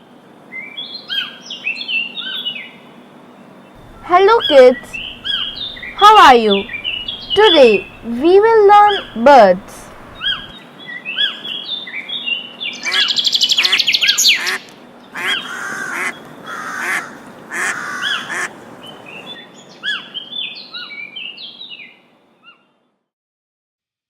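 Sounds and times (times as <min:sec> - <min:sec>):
birds chirping and calling: 0:03.8 - 0:10.5
loud rapid bird trill: 0:03.8 - 0:10.5.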